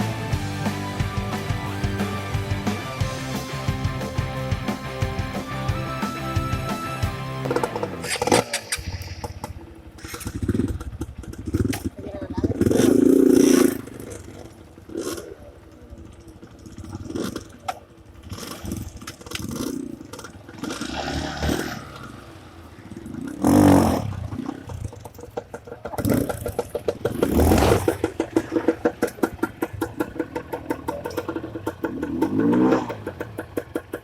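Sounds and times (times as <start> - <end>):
dirt bike engine chugging: 0.0 - 34.0.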